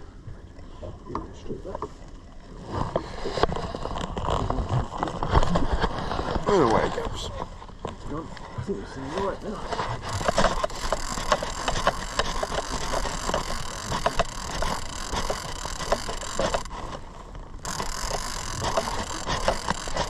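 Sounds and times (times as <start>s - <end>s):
knocks and clicks: 10.0s - 16.8s.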